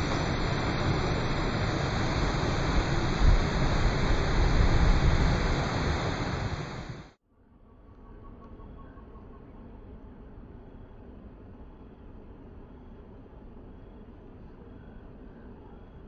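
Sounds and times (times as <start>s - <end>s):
waterfall rushing: 0.0s - 7.1s.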